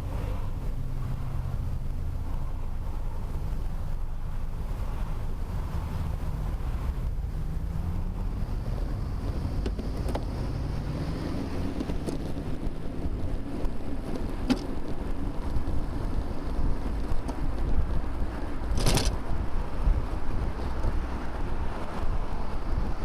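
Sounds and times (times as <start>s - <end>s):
road rumble: 0.0s - 23.0s
wind buffeting microphone: 0.0s - 23.0s.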